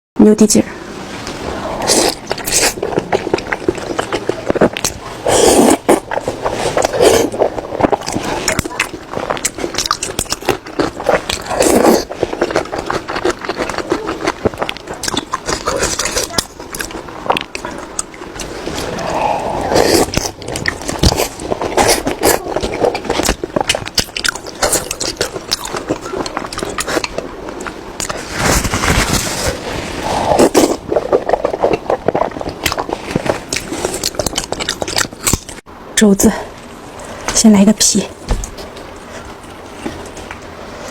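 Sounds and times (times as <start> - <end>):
wet chewing and mouth smacking: 1.8 - 35.6.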